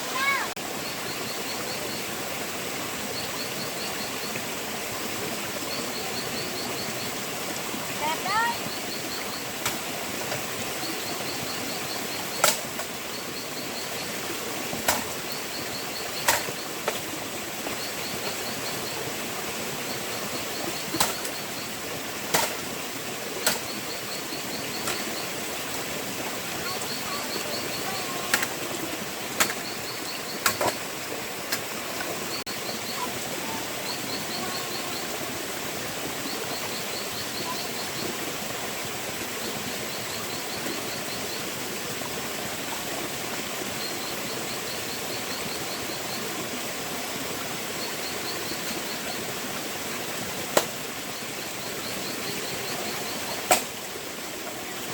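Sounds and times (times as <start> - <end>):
stream rushing: 0.0 - 54.9
insect ticking call: 8.0 - 19.2, 23.4 - 35.3.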